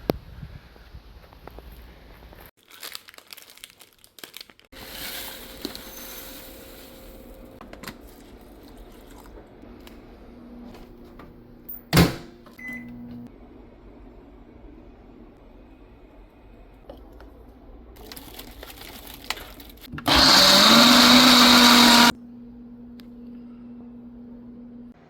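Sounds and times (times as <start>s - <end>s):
packaging rustling and crinkling: 2.6s - 7.1s, 18.0s - 19.9s.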